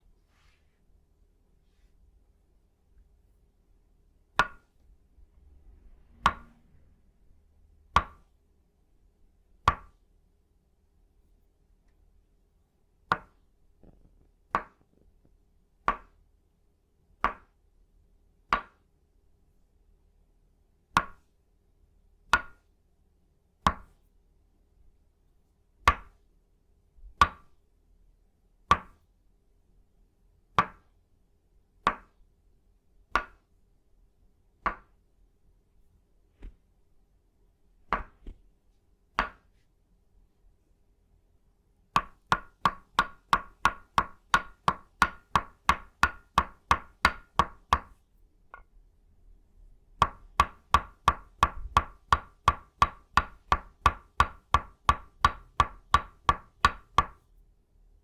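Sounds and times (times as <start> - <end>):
wooden mallet knocking wooden peg: 4.4 - 4.8, 6.2 - 6.6, 7.9 - 8.3, 13.1 - 15.0, 33.2 - 33.4, 34.6 - 34.9, 37.9 - 38.4, 39.2 - 39.5, 42.0 - 48.7, 50.0 - 57.2
light wooden tap: 37.9 - 38.4.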